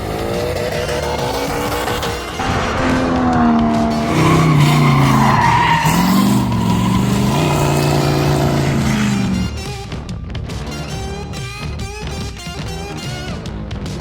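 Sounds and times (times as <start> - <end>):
race car engine revving: 0.0 - 10.0
tyres squealing: 3.9 - 9.7.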